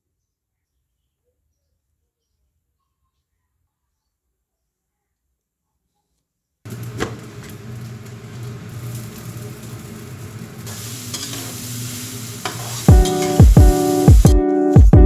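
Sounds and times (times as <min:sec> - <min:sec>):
food sizzling in a pan: 0:06.7 - 0:14.4
music with a steady beat: 0:12.9 - 0:15.0.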